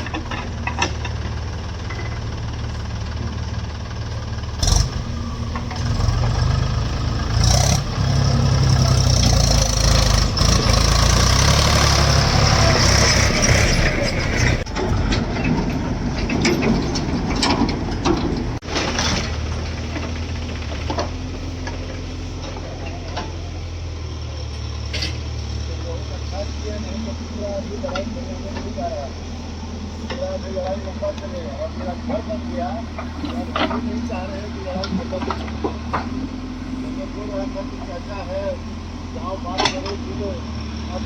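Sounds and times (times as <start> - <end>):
metallic clanks: 0.0 - 2.5, 4.6 - 23.6
diesel engine revving: 0.0 - 41.0.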